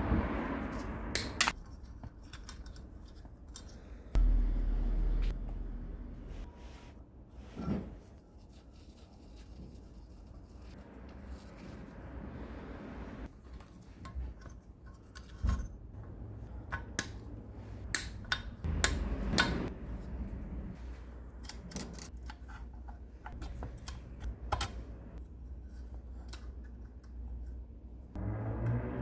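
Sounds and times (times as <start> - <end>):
steady low hum: 3.9 - 7.2, 16.0 - 22.1.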